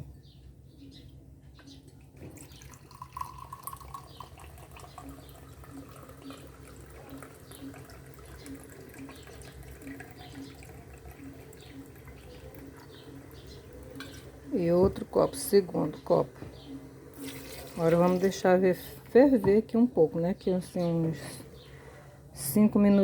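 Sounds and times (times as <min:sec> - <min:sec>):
liquid trickling into a pot: 0:02.0 - 0:14.4, 0:17.1 - 0:18.4.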